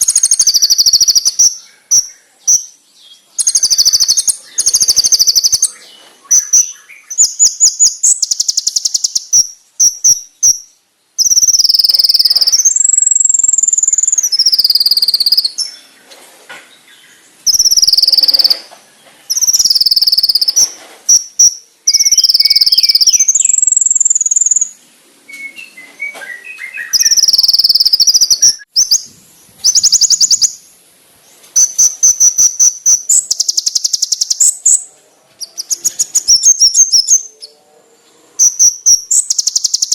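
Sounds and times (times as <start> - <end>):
bird rapid trilling: 0.0 - 2.1, 3.4 - 10.6, 17.5 - 18.7, 19.3 - 24.7
bird wavering whistles: 0.0 - 2.1, 3.4 - 10.6, 11.2 - 15.6, 17.5 - 18.7, 19.3 - 24.7, 25.4 - 30.6.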